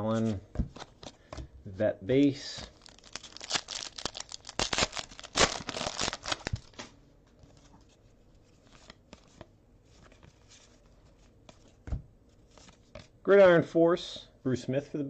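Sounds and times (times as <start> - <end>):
trading cards rustling and clicking: 2.6 - 6.9.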